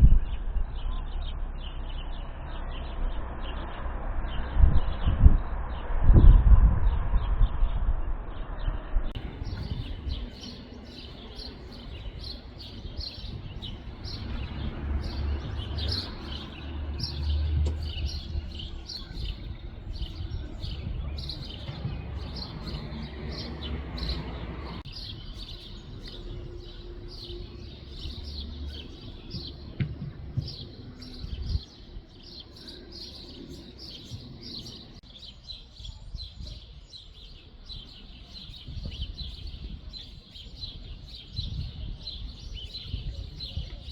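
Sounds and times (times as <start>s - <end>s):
songbirds chirping: 0.0s - 5.9s, 7.2s - 43.9s
low rumble: 0.0s - 32.0s.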